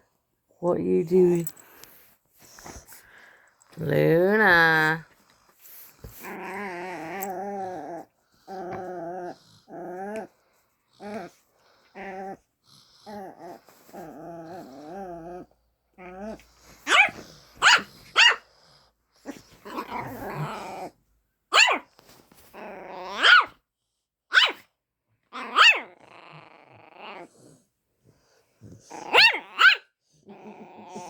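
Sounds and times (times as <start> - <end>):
dog growling: 6.2 - 16.5, 18.6 - 21.0, 25.4 - 27.7, 30.2 - 31.0
dog barking: 16.8 - 18.4, 21.5 - 21.8, 23.2 - 23.5, 24.3 - 24.6, 25.6 - 25.8, 29.1 - 29.9.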